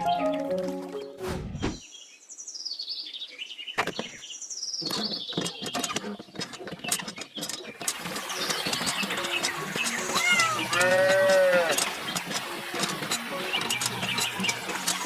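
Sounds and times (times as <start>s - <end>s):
bird chirping: 0.0s - 11.0s
clicks and rustling: 4.8s - 15.0s.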